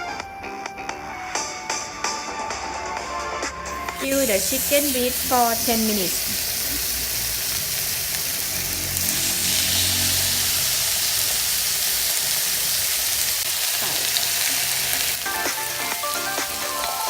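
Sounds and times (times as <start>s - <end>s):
chicken sizzling in frying pan: 3.7s - 17.0s.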